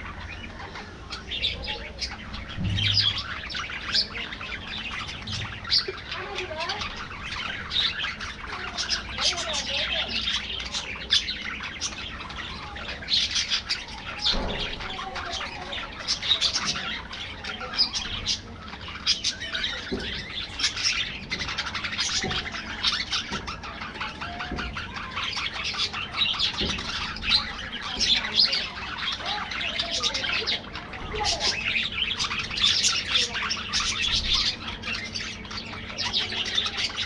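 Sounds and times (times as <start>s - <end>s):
budgerigars chattering: 0.0s - 37.0s.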